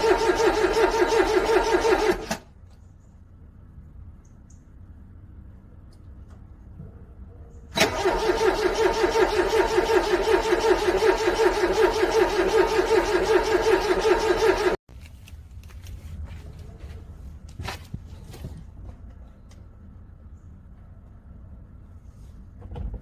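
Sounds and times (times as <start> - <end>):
car starter motor cranking: 0.0 - 2.5, 7.8 - 14.8.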